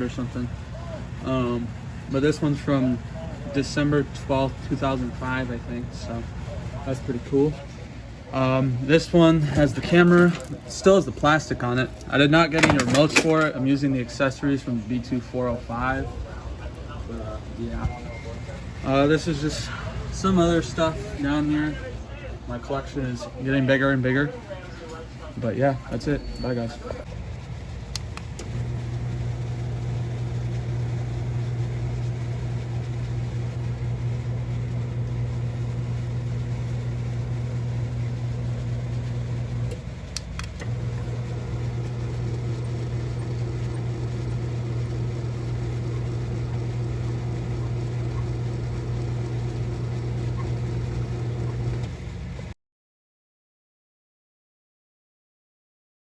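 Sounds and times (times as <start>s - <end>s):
garage door opener motor hum: 0.0s - 13.9s, 25.9s - 52.5s
garage door opener click: 12.0s - 13.6s, 28.0s - 28.7s, 39.6s - 41.9s.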